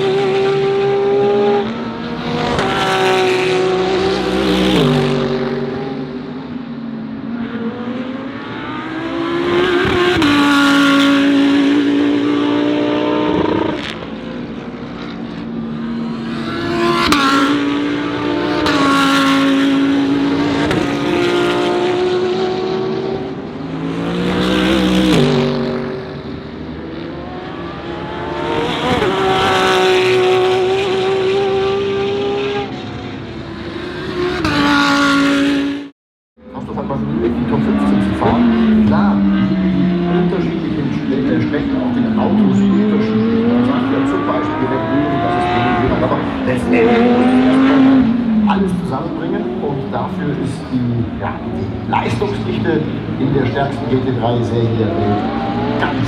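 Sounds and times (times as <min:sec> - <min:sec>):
race car engines passing: 0:00.0 - 0:56.0.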